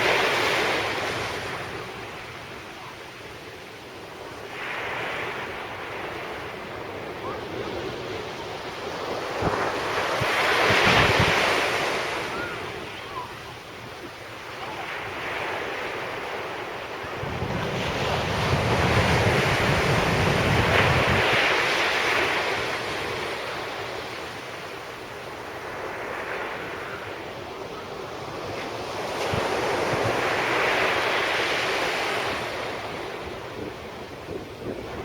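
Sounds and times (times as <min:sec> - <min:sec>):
sea waves breaking on beach: 0:04.4 - 0:35.0
wind buffeting microphone: 0:09.0 - 0:13.2, 0:17.0 - 0:23.2, 0:32.3 - 0:35.0.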